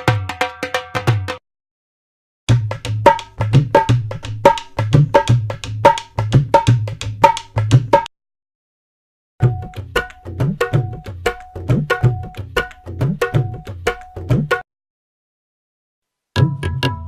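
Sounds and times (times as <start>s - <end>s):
percussion music: 0.0s - 1.4s, 2.5s - 8.1s, 9.4s - 14.7s, 16.4s - 17.0s.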